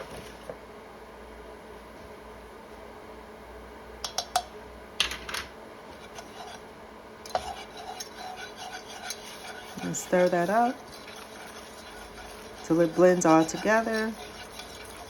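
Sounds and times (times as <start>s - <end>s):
metal spoon scraping a pan: 5.9s - 6.7s, 7.3s - 15.0s.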